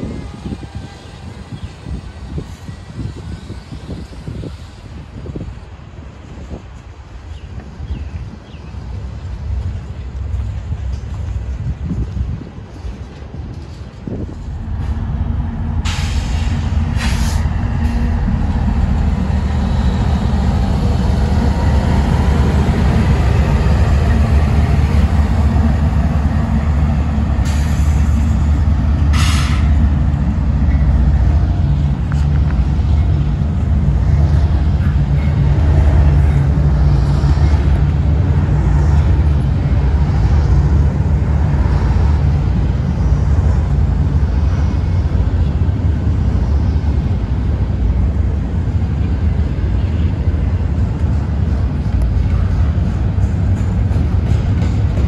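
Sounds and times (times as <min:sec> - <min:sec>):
diesel locomotive rumbling: 0:00.0 - 0:55.0
sharp air hisses: 0:15.6 - 0:19.1, 0:27.4 - 0:29.8.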